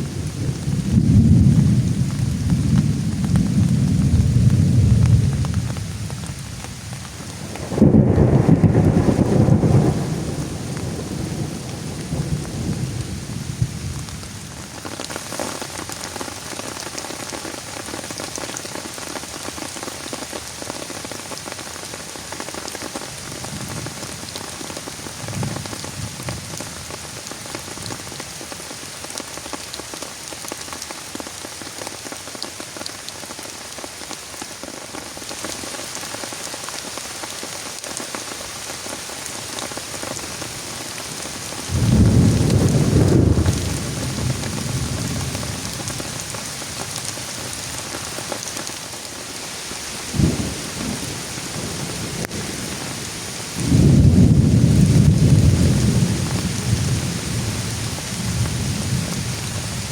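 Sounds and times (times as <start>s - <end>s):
thunder rumble: 0.0s - 6.6s, 7.3s - 14.5s, 41.7s - 46.4s, 50.1s - 59.9s
steady rain with pattering drops: 0.0s - 59.9s.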